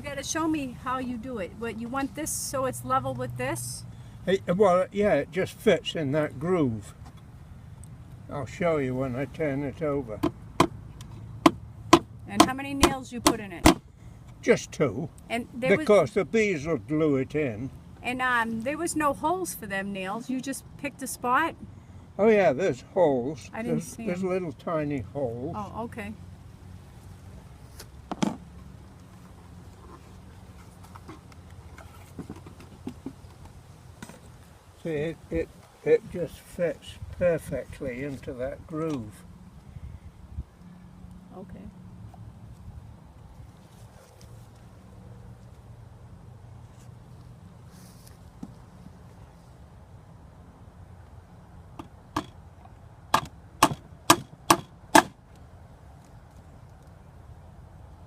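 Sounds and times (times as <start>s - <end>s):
sharp knock on wood: 10.2s - 10.8s, 11.4s - 13.8s, 53.1s - 55.1s
hammer hitting a nail: 11.4s - 13.8s, 53.1s - 55.1s.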